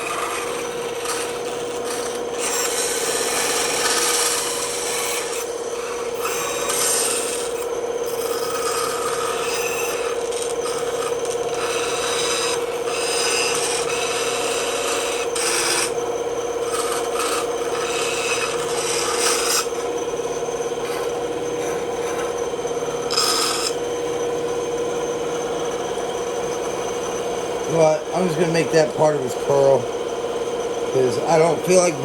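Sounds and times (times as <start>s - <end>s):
saw blade rasping through wood: 0.0s - 16.0s, 16.6s - 19.9s, 20.8s - 23.8s
bandsaw humming: 0.0s - 32.0s.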